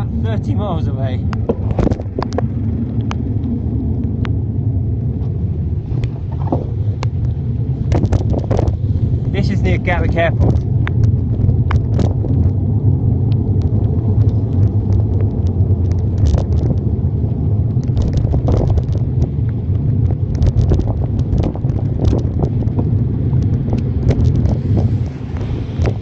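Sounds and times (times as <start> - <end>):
wind buffeting microphone: 0.0 - 26.0
sharp taps and clicks: 1.2 - 3.5.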